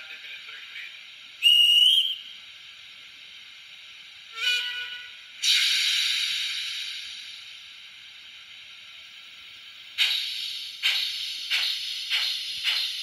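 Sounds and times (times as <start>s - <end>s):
steam whistle from small speaker: 1.4s - 2.3s, 4.3s - 6.1s
hiss of released steam: 4.3s - 8.5s, 9.9s - 13.0s.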